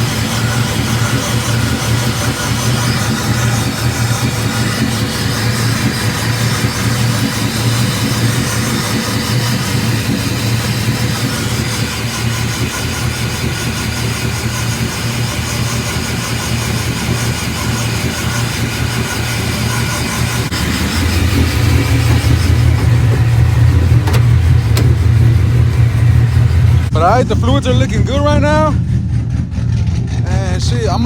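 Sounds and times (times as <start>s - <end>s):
truck engine idling: 0.0s - 31.0s.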